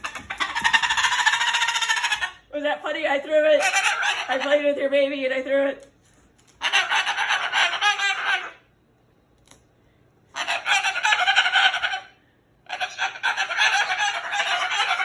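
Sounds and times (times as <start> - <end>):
parrot squawking harshly: 0.0 - 2.5, 3.5 - 4.6, 6.6 - 8.7, 10.3 - 15.0.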